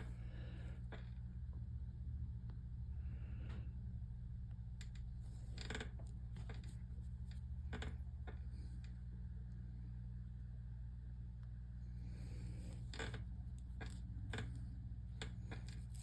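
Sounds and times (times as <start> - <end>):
steady low hum: 0.0 - 16.0
needle and yarn clicks and scratches: 4.8 - 8.1, 12.6 - 16.0.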